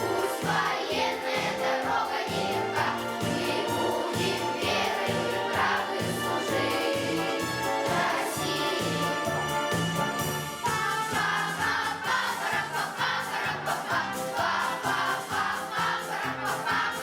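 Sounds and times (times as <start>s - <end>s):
choir singing march-style song: 0.0s - 17.0s
recorded backing track: 0.0s - 17.0s.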